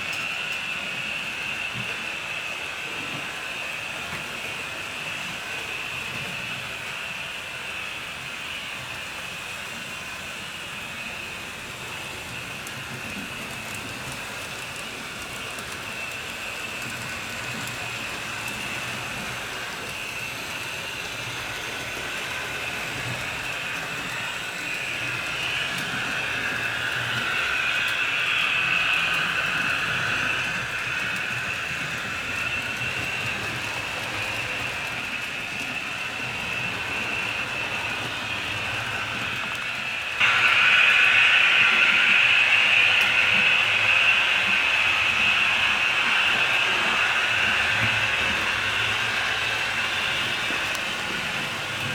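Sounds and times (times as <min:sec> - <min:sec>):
model train motor whir: 0:00.0 - 0:51.9
wheels rumbling on track: 0:00.0 - 0:51.9.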